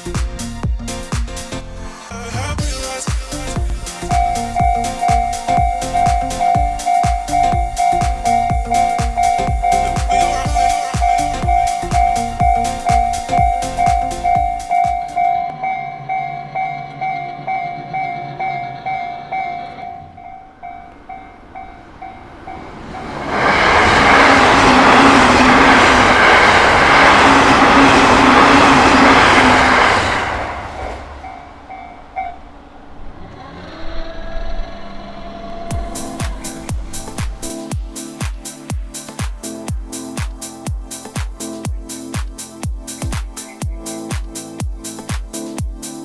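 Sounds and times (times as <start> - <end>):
train wheels rumbling on rails: 3.6 - 15.6, 16.8 - 37.9
level crossing bell ringing: 4.1 - 16.8.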